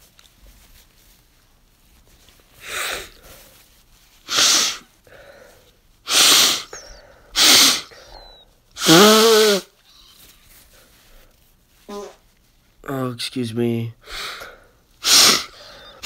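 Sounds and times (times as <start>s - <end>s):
person blowing nose: 2.6s - 11.2s, 11.8s - 12.2s, 14.0s - 16.0s
honking nose blow: 4.3s - 4.9s, 6.1s - 9.8s, 15.0s - 16.0s.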